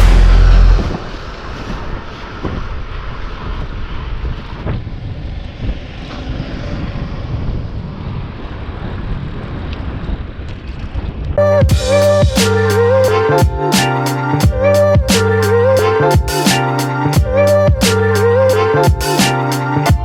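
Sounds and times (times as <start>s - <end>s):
bicycle road noise: 0.0s - 11.4s
wind rushing on microphone: 0.0s - 11.4s.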